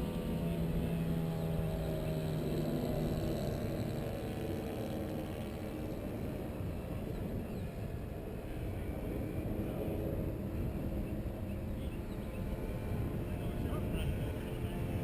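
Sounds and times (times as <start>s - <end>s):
faint electric motor whine: 0.0s - 15.0s.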